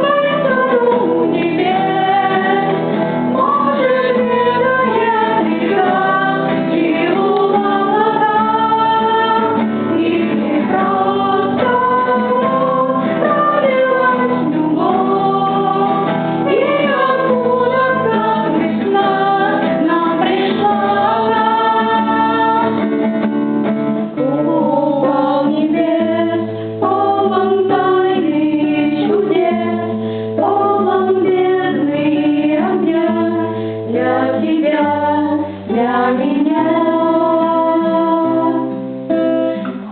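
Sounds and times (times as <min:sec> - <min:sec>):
woman singing: 0:00.0 - 0:23.0, 0:24.2 - 0:39.6
guitar-like accompaniment: 0:00.0 - 0:39.9.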